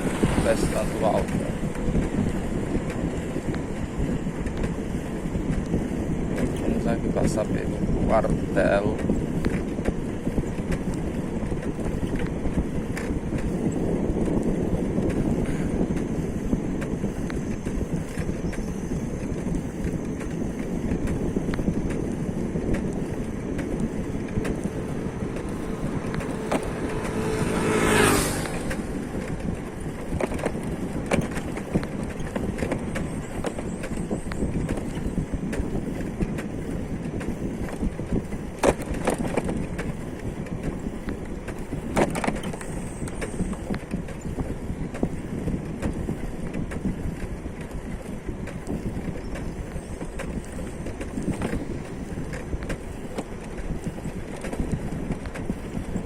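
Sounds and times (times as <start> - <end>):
vehicle passing: 0.0 - 4.1, 22.9 - 33.7
vehicle road noise: 0.0 - 56.0.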